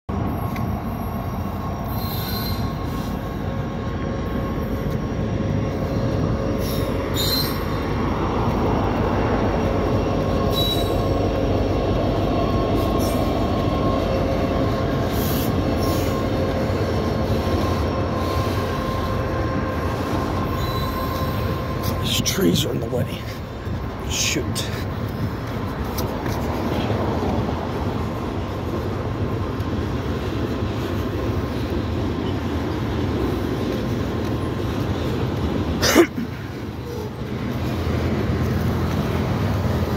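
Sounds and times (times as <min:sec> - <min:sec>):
constant whining tone: 0:00.1 - 0:39.9
train wheels on rail: 0:00.1 - 0:39.9
high-pitched wheel squeals: 0:00.3 - 0:03.6, 0:05.8 - 0:07.8, 0:10.4 - 0:11.2, 0:12.8 - 0:22.2.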